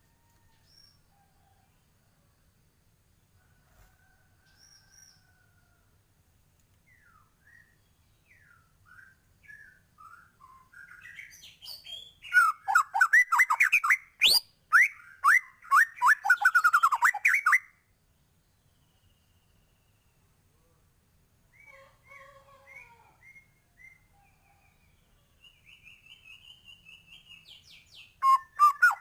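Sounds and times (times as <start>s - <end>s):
bird singing whistled notes: 6.8s - 17.8s, 22.7s - 29.0s.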